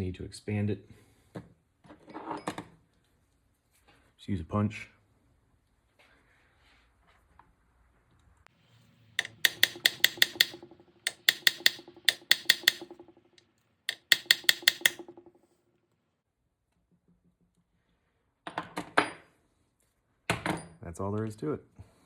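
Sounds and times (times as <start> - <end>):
hammer tapping on metal punch: 9.2 - 13.1, 13.9 - 15.1.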